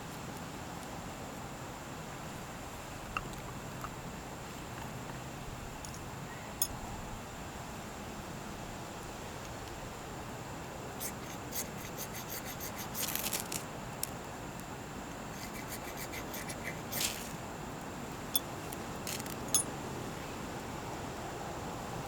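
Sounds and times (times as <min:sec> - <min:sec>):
steady background hiss: 0:00.0 - 0:22.0
sharp ticks: 0:11.0 - 0:13.4, 0:15.4 - 0:17.2
rasping scrape: 0:11.0 - 0:13.6, 0:15.3 - 0:17.4.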